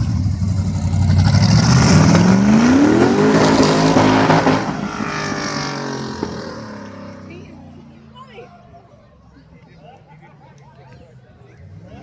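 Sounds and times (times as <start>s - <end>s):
race car accelerating past: 0.0s - 8.2s.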